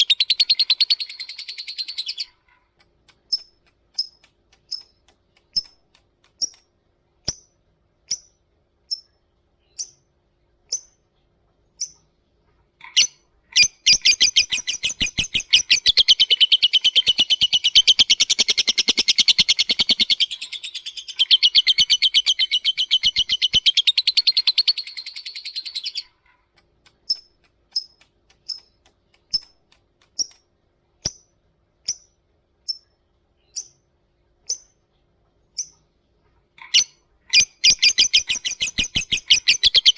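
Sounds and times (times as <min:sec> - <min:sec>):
bird chattering trill: 0:00.0 - 0:02.4, 0:12.8 - 0:26.2, 0:36.6 - 0:39.9
bird high chirps: 0:00.0 - 0:02.4, 0:12.8 - 0:26.2, 0:36.6 - 0:39.9.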